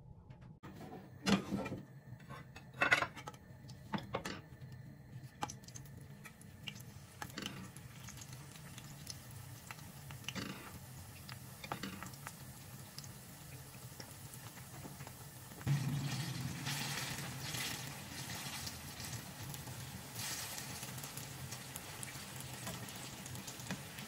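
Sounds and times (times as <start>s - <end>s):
food sizzling in hot oil: 5.2s - 24.0s.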